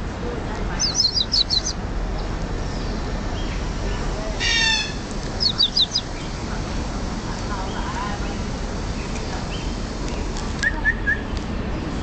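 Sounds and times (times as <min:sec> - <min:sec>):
loud harsh bird squawk: 0:00.8 - 0:01.8, 0:04.4 - 0:06.1.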